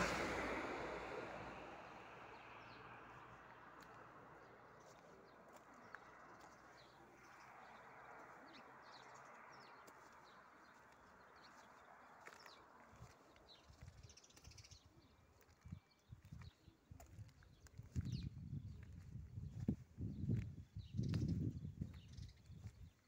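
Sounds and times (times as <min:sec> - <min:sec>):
faint birds chirping: 0:01.2 - 0:23.0
low microphone rumbles: 0:15.7 - 0:22.9.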